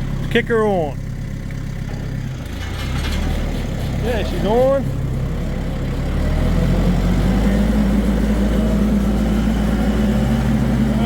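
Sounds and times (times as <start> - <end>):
drum mower spinning: 0.0 - 6.0
tractor diesel engine running: 0.0 - 11.0.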